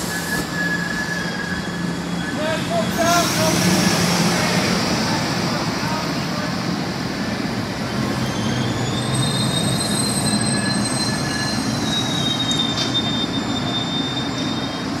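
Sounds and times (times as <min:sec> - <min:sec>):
high-pitched brake squeals: 0:00.0 - 0:03.5, 0:08.0 - 0:15.0
train wheels rumbling on rails: 0:00.0 - 0:15.0.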